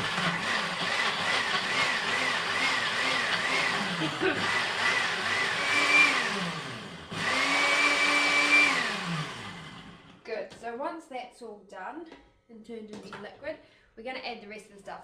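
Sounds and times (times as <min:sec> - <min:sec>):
blender pulsing: 0:00.0 - 0:10.2.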